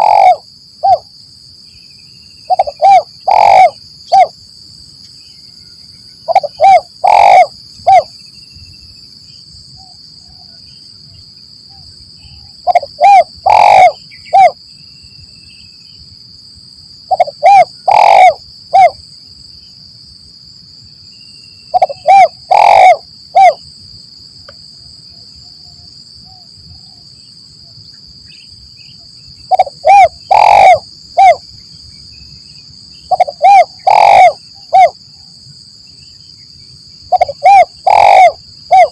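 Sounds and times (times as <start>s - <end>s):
dove cooing: 0.0s - 1.1s, 2.5s - 4.3s, 6.3s - 8.1s, 12.6s - 14.6s, 17.1s - 19.0s, 21.7s - 23.6s, 29.5s - 31.4s, 33.1s - 35.0s, 37.1s - 38.9s
high-pitched insect hum: 0.0s - 38.9s.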